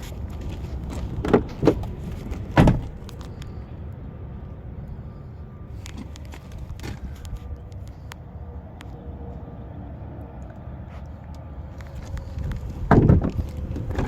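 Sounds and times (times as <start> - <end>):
low outdoor rumble: 0.0 - 14.0
dull thumps: 1.2 - 3.1.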